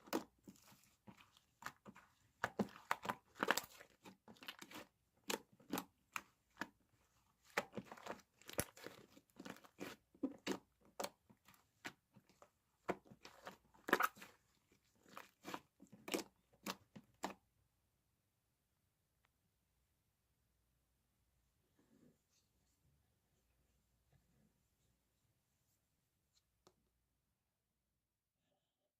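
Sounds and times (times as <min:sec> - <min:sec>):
slime squished by hand: 0:00.0 - 0:17.4.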